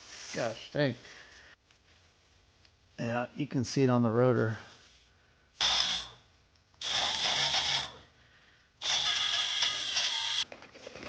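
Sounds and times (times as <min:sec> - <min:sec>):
compressed-air tool hissing: 0:05.6 - 0:06.2, 0:06.8 - 0:08.1, 0:08.8 - 0:10.4.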